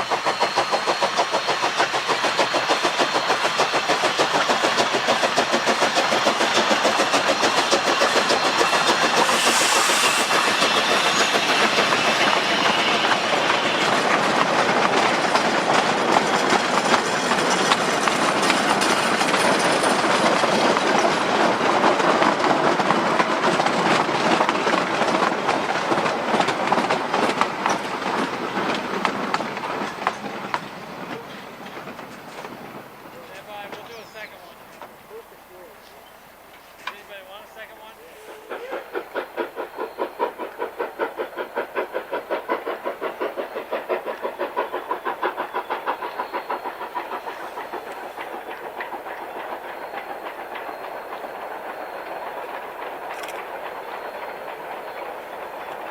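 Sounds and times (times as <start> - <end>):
steam hiss: 0.0 - 55.9
steam locomotive exhaust beats: 0.0 - 55.9.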